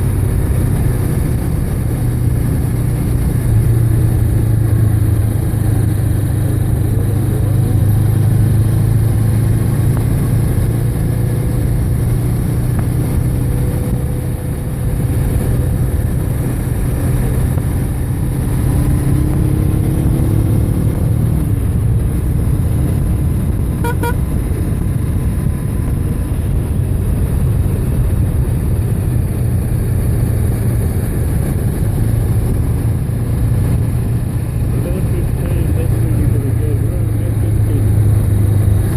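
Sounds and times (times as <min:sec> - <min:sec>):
motorcycle engine running: 0:00.0 - 0:38.9
wind and road noise: 0:00.0 - 0:38.9
double beep: 0:23.8 - 0:24.2.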